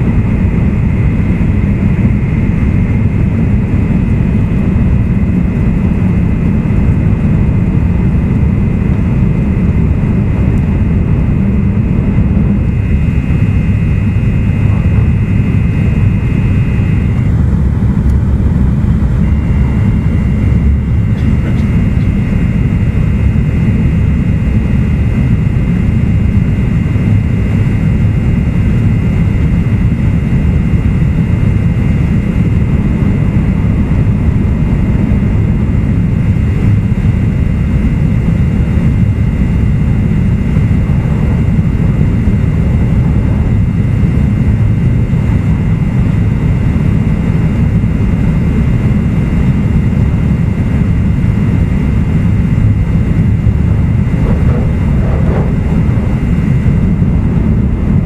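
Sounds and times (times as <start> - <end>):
train interior rumble: 0.0 - 31.2, 38.5 - 46.3, 51.0 - 58.0
thin high whine: 0.3 - 32.3, 51.2 - 58.0.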